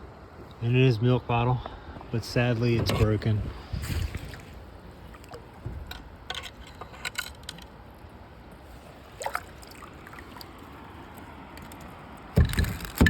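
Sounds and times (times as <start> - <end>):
water rumble: 0.0 - 13.0
wind: 0.0 - 13.0
handling clicks and knocks: 2.7 - 3.4, 11.6 - 13.0.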